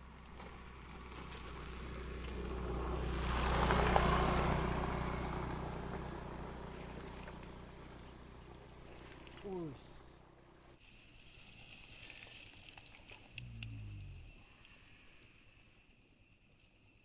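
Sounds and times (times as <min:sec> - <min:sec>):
motor vehicle passing by: 0:00.0 - 0:10.8
steady low hum: 0:00.0 - 0:10.8.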